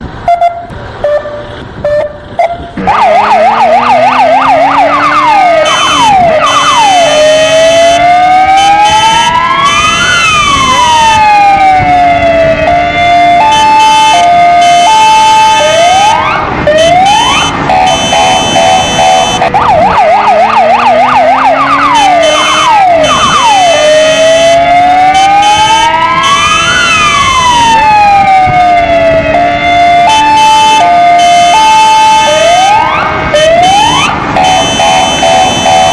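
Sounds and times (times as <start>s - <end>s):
electronic siren cycling tones: 1.8s - 35.9s
motorcycle engine: 2.7s - 9.1s.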